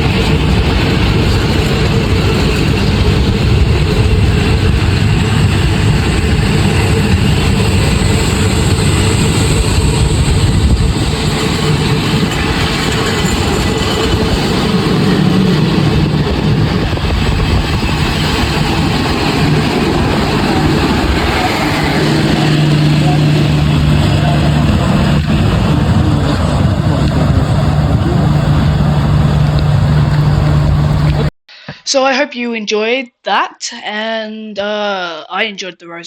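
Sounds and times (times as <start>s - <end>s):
train rumbling: 0.0s - 31.3s.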